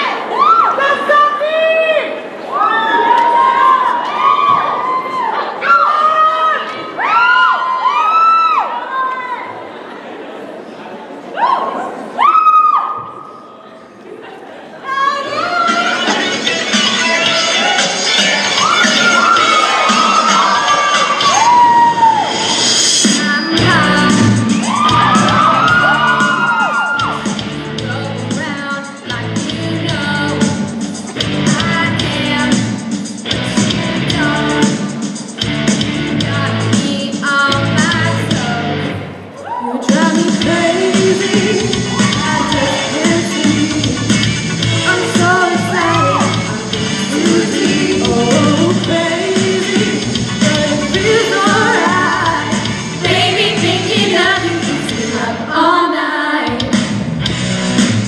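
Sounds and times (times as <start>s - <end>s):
pop-rock song with singing: 15.7s - 57.1s.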